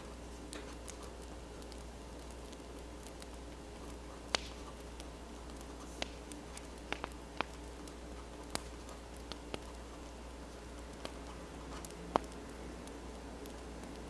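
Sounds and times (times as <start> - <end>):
sharp fire pops: 0.0 - 14.0
wood fire crackling: 0.0 - 14.0.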